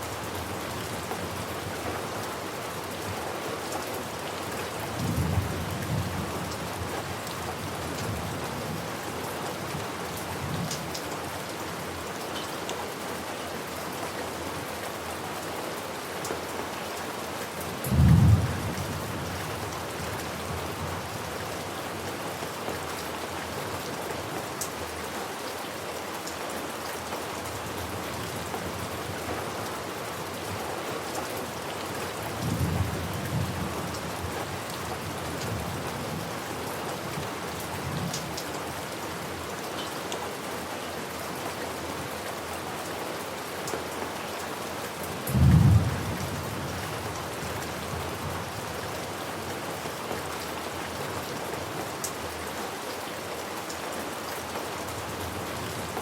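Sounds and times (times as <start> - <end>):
steady rain falling: 0.0 - 56.0
rumbles of thunder: 17.8 - 19.6, 45.3 - 48.2
loud thunderclap: 45.4 - 46.2.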